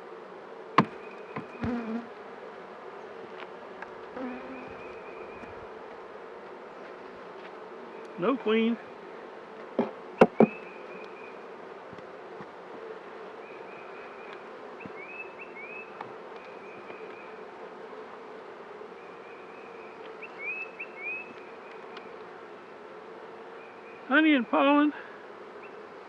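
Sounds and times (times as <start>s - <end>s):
bees buzzing: 0.0s - 26.0s
sharp knocks: 9.8s - 10.6s.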